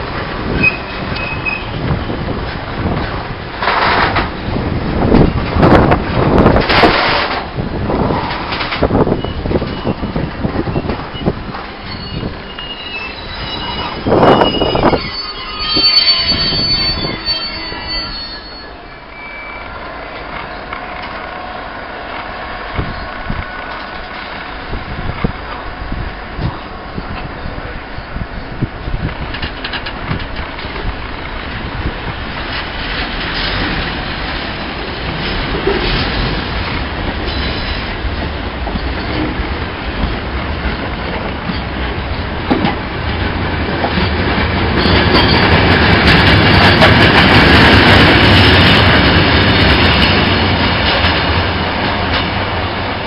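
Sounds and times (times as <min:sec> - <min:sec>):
freight wagons rolling past: 0:00.0 - 0:53.0
wheels clicking over rail joints: 0:00.1 - 0:12.8, 0:28.4 - 0:53.0
wheels squealing: 0:00.5 - 0:02.2, 0:09.1 - 0:21.1.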